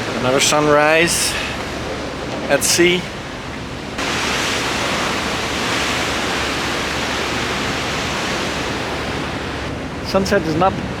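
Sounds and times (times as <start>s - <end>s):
wind and sea rushing: 0.0s - 11.0s.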